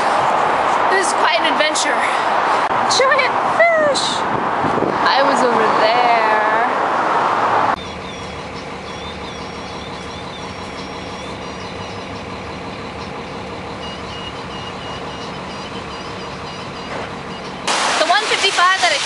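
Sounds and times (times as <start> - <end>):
vehicle engine running: 7.8 - 17.9.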